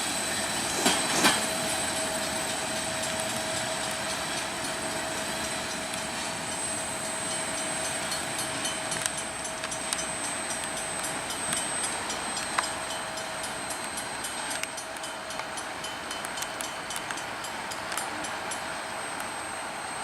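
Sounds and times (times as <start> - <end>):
train wheels rumbling on rail: 0.0 - 20.0
thin high tone: 1.4 - 20.0
light ticks: 8.1 - 18.6.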